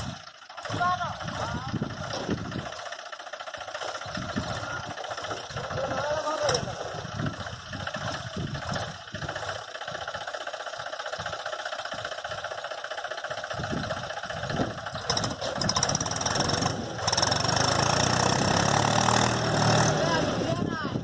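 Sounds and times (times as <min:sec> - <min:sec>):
tractor diesel engine knocking: 0:00.0 - 0:21.0.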